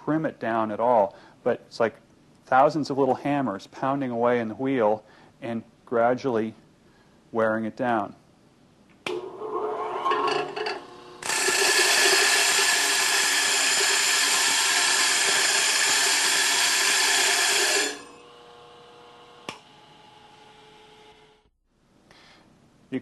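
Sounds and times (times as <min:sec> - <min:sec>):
harsh grinding of grinder wheel: 0:09.1 - 0:19.2
bench grinder running: 0:09.1 - 0:21.3.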